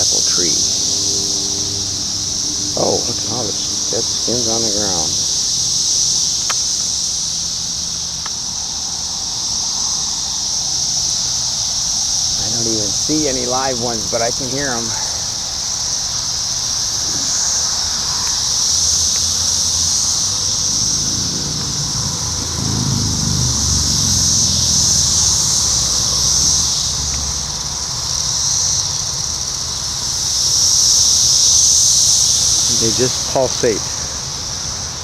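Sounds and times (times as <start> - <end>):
low vehicle rumble: 0.0 - 30.2
cicadas droning: 0.0 - 35.0.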